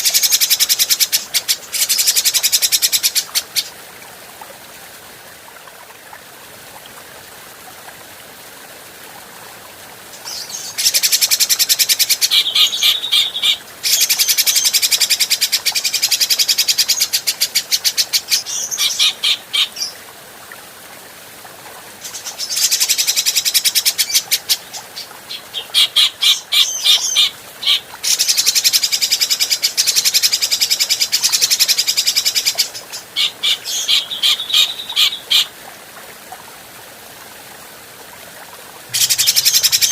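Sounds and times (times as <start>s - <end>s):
faint steady hiss: 0.0s - 39.9s
bird harsh chattering calls: 10.8s - 15.3s, 25.6s - 29.3s, 33.2s - 35.4s, 38.9s - 39.9s.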